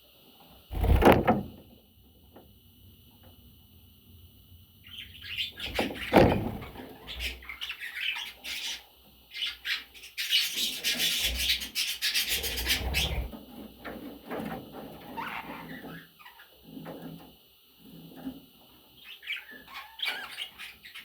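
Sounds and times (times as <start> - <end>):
budgerigars chirping and chattering: 4.8 - 13.3, 19.0 - 21.0.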